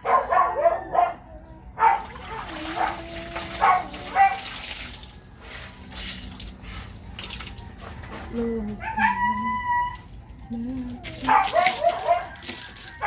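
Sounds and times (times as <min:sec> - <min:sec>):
water splashing in a basin: 0:02.0 - 0:08.3.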